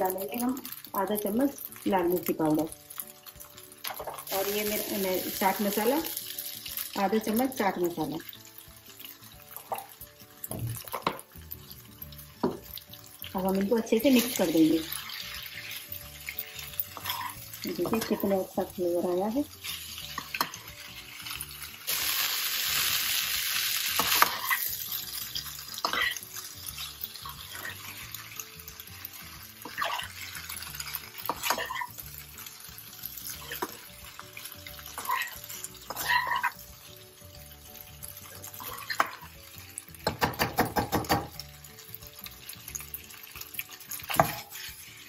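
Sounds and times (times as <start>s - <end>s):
spatula scraping a pan: 14.1s - 18.4s, 23.9s - 32.0s, 34.8s - 36.6s, 43.8s - 45.0s.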